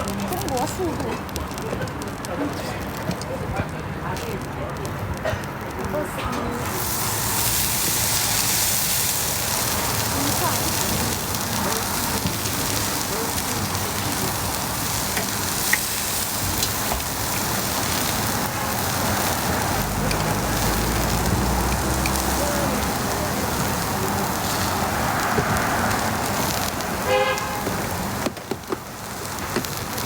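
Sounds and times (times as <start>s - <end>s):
pancake sizzling in oil: 6.6s - 30.0s.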